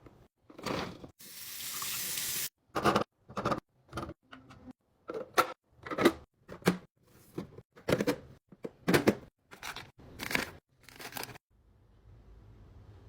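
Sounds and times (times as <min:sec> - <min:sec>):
plastic packages clacking and rustling: 0:09.5 - 0:11.4.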